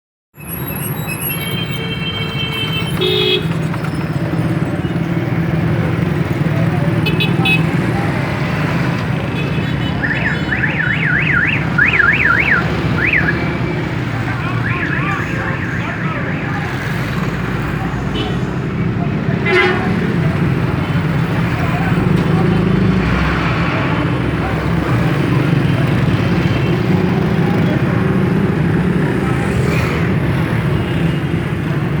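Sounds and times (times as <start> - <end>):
vehicle alarm siren: 10.0 - 16.9.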